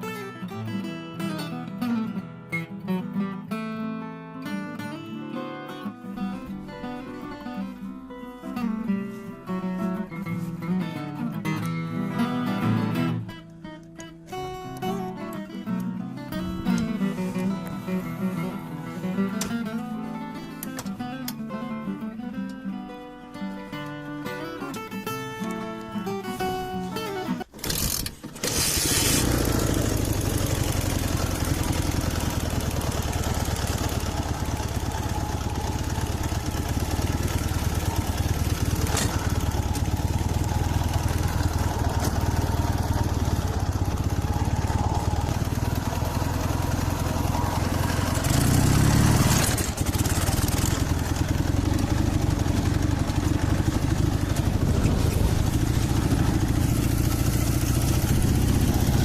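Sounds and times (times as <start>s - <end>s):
motorcycle engine running: 27.6s - 59.0s.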